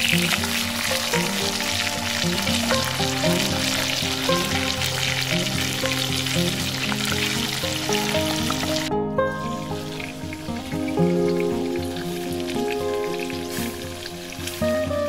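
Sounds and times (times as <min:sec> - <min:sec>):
fish sizzling in hot oil: 0:00.0 - 0:08.9, 0:09.7 - 0:15.0.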